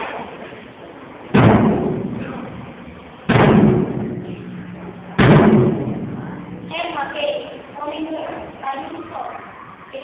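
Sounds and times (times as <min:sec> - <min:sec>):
heavy strikes with low ring: 0:01.3 - 0:06.7.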